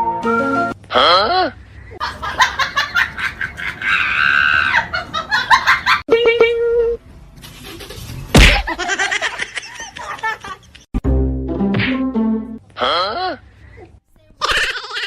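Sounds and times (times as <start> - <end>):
sharp slap: 8.3 - 8.8, 11.7 - 12.0.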